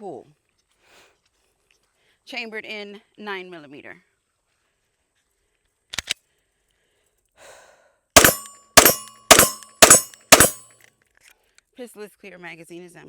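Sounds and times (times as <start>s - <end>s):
pistol shots: 8.2s - 10.6s
sharp mechanical clicks: 8.2s - 10.7s.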